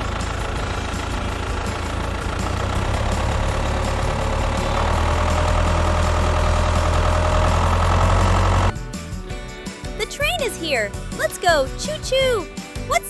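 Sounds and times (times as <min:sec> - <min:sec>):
locomotive engine rumbling: 0:00.0 - 0:09.0.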